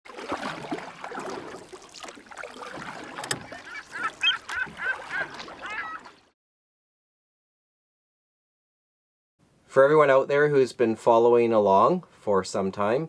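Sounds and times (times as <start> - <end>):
bird calling: 2.5 - 6.3.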